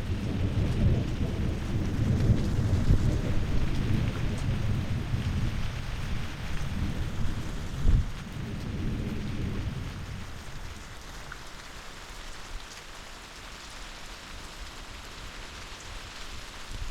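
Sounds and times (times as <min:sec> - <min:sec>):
thunder rumble and clap: 0:00.0 - 0:10.8
heavy rain falling: 0:00.0 - 0:16.9.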